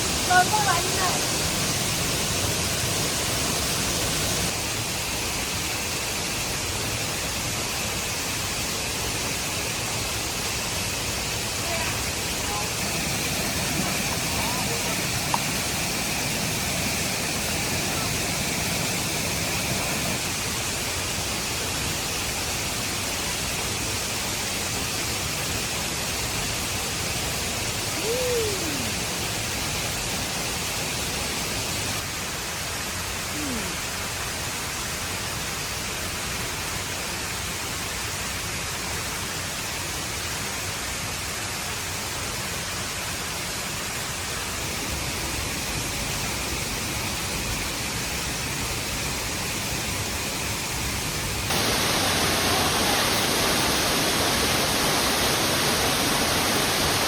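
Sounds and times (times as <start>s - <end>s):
steady rushing noise: 10.5s - 21.2s, 49.8s - 57.0s.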